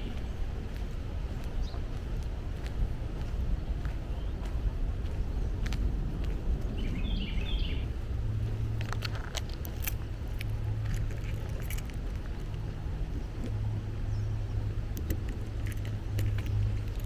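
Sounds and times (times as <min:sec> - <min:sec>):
footsteps on a trail: 0:00.0 - 0:17.0
low rumble: 0:00.0 - 0:17.0
bird chirps: 0:06.8 - 0:07.9.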